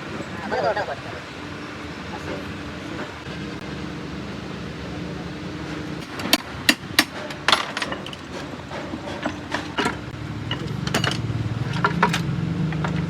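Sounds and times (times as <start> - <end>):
low engine rumble: 0.0 - 13.0
hand tools clinking on metal: 6.0 - 13.0.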